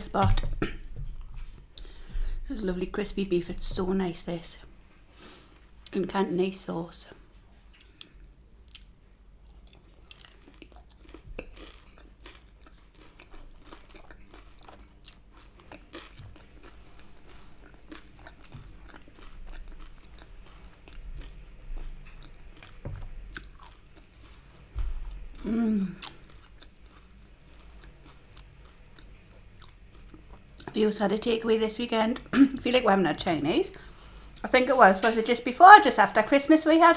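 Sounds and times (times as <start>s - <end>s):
chewing and crunching: 7.7s - 30.7s.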